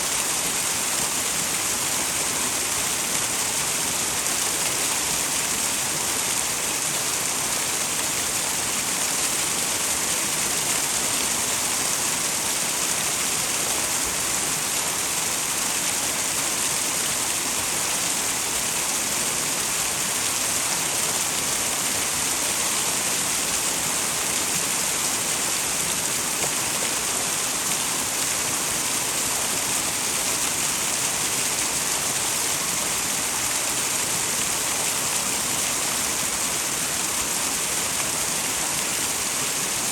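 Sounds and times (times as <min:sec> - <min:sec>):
waterfall pouring and splashing: 0:00.0 - 0:39.9.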